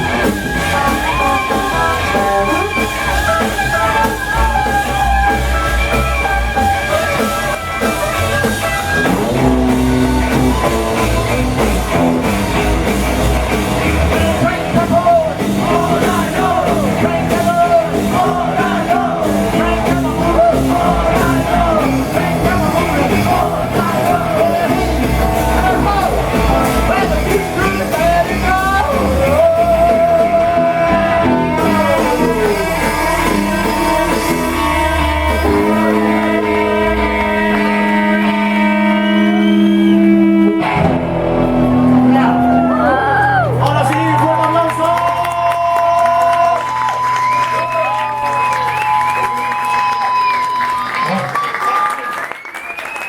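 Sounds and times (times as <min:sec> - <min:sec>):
person singing: 0:00.0 - 0:05.4, 0:13.8 - 0:40.8
steady drum beat: 0:00.0 - 0:38.7
electric guitar: 0:00.0 - 0:52.2
rock and roll band playing: 0:00.0 - 0:53.0.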